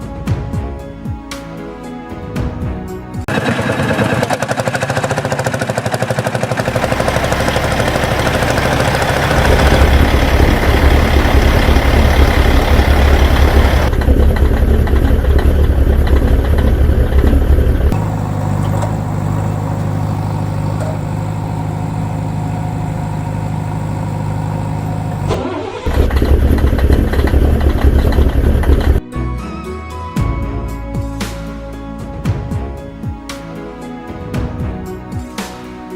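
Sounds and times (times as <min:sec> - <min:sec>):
vehicle engine running and revving: 0:03.3 - 0:29.0.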